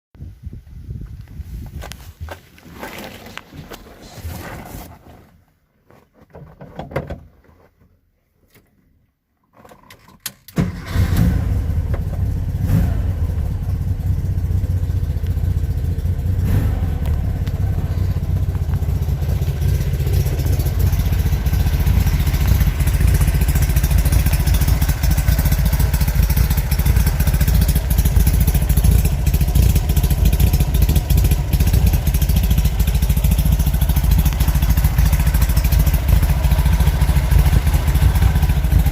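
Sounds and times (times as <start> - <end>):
engine rumbling: 10.6 - 38.9.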